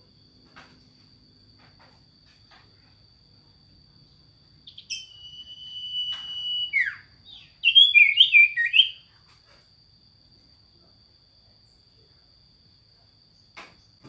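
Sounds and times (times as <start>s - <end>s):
high insect trill: 0.0s - 14.0s
songbird whistling: 4.6s - 9.1s.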